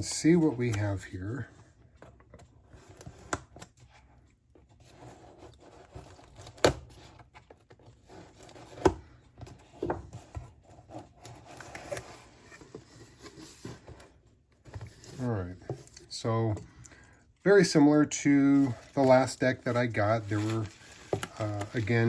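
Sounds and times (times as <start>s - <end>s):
cardboard rubbing and rustling: 1.9s - 16.0s, 18.5s - 22.0s.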